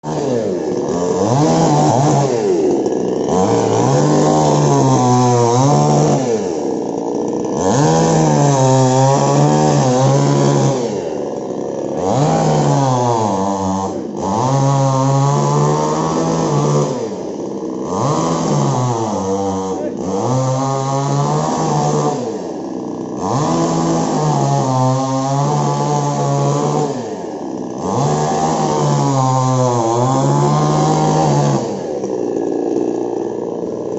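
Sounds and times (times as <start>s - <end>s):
chainsaw engine revving: 0.0s - 33.9s.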